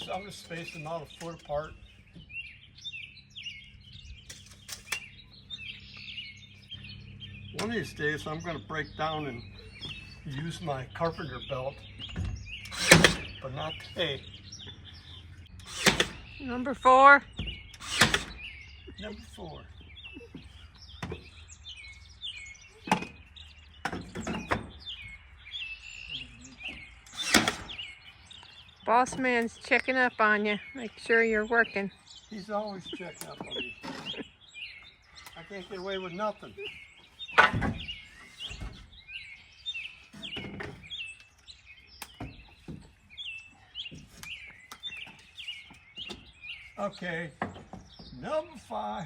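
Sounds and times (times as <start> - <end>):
birds chirping: 0.0 - 49.0
hammer nailing wood: 12.2 - 13.3, 15.7 - 16.2, 17.8 - 18.4, 26.7 - 27.8.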